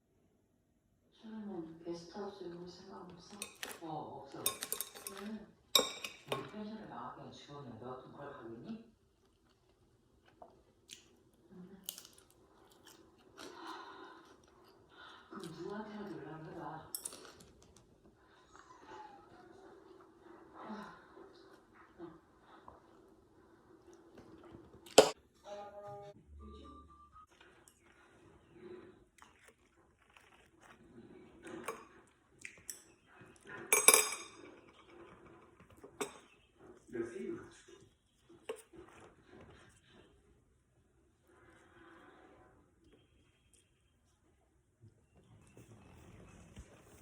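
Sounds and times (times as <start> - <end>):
chewing crispy food: 9.0 - 25.0, 27.3 - 33.7
chewing and biting: 27.3 - 33.6.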